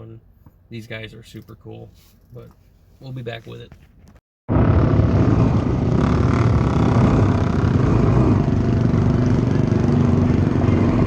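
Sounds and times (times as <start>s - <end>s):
vehicle engines running: 4.5s - 11.0s.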